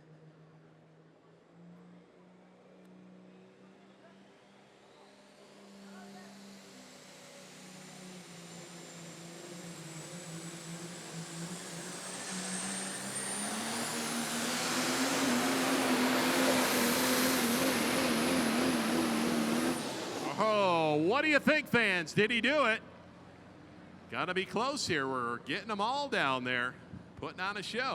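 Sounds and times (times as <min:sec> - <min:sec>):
pulling truck engine under full power: 0:07.4 - 0:22.2.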